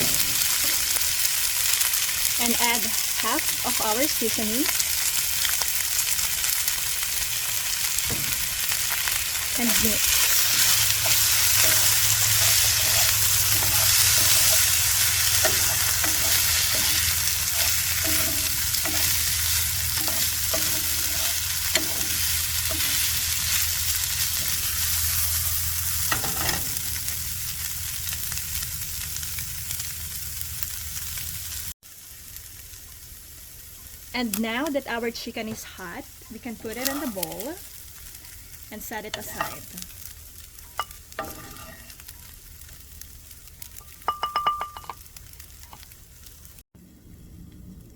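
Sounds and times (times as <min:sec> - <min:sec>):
chicken sizzling in hot oil: 0:00.0 - 0:47.9
utensil scraping a pan: 0:09.6 - 0:26.9, 0:38.8 - 0:39.8, 0:40.8 - 0:42.1.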